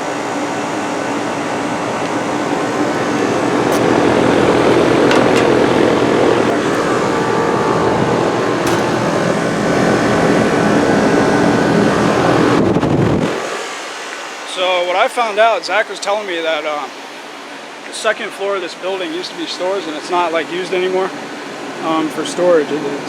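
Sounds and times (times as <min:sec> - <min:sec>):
low compressor hum: 0:00.0 - 0:13.2
loud fan rush: 0:00.0 - 0:23.0.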